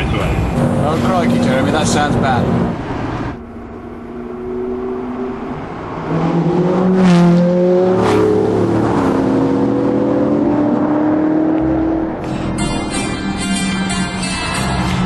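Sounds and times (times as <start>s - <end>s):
car engines accelerating hard: 0.0s - 15.0s
music: 12.2s - 15.0s.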